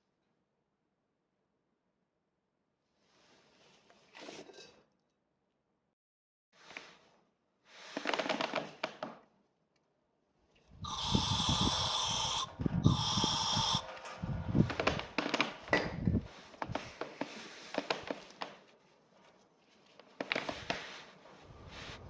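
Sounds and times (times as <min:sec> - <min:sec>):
hissing spray bursts: 0:10.8 - 0:13.8.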